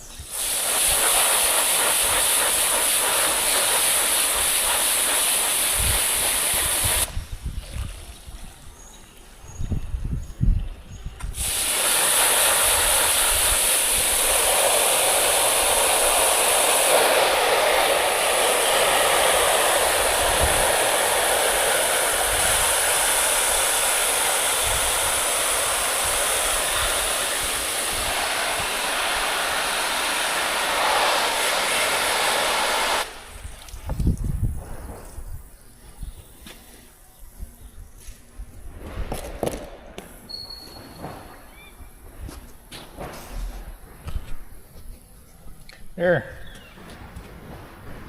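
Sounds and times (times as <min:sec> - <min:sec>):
water hose spraying: 0:00.0 - 0:08.8, 0:11.3 - 0:36.9.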